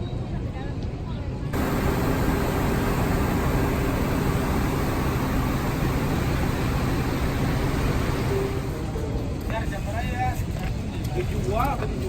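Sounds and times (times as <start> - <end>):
electric train running: 1.6 - 9.5.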